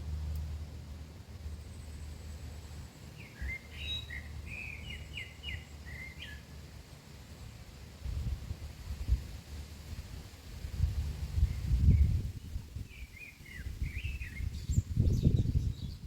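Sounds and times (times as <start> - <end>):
low steady rumble: 0.0 - 16.0
songbird chirping: 1.2 - 7.6, 11.4 - 16.0.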